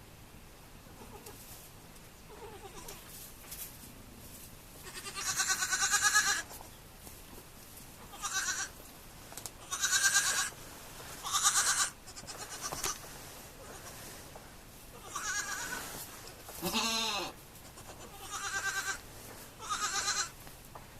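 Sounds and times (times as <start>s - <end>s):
goat kids bleating: 0.9s - 1.5s, 2.3s - 3.1s, 4.8s - 6.6s, 8.0s - 8.8s, 9.6s - 10.6s, 11.2s - 14.1s, 14.9s - 20.4s.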